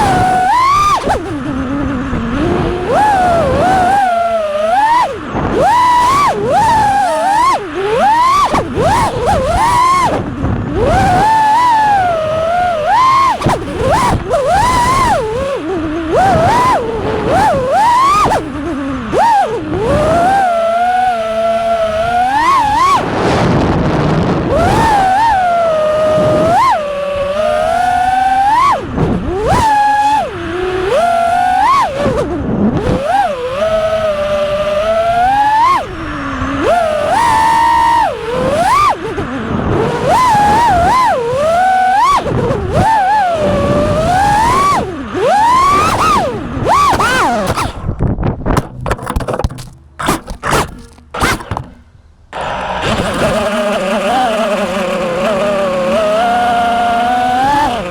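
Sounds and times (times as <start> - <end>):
quadcopter motors whining: 0.0 - 57.9
sharp knocks and scrapes: 48.5 - 51.9.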